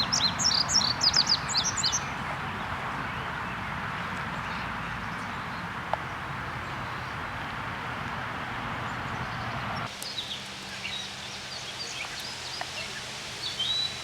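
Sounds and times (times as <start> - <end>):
birds chirping: 0.0 - 14.0
steady rushing noise with hum: 6.4 - 14.0.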